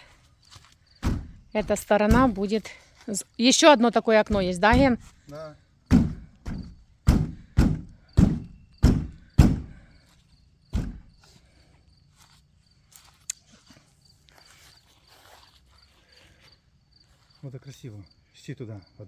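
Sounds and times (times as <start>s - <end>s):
heavy footsteps: 0.0s - 2.8s, 4.2s - 11.3s
crickets chirring: 0.0s - 19.0s.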